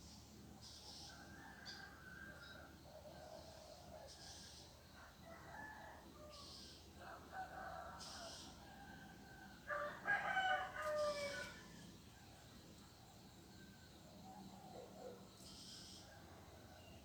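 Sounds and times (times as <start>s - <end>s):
rooster crowing: 9.7s - 11.7s.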